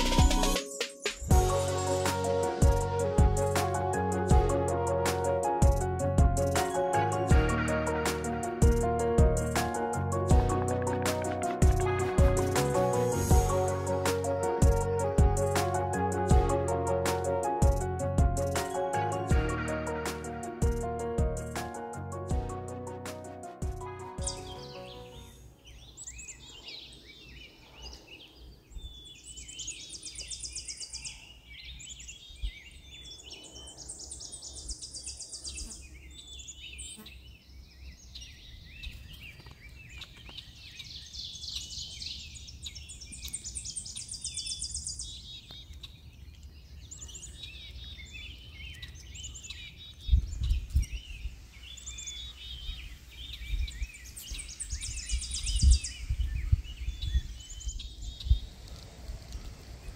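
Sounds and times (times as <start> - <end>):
wild birds chirping: 24.1 - 59.9.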